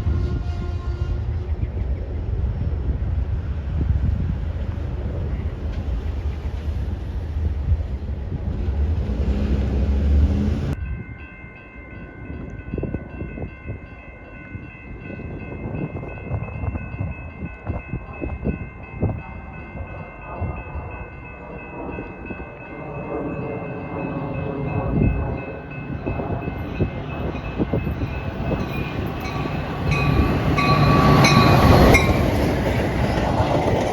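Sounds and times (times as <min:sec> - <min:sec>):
train rumbling: 0:00.0 - 0:33.9
high ringing tones: 0:10.8 - 0:32.6.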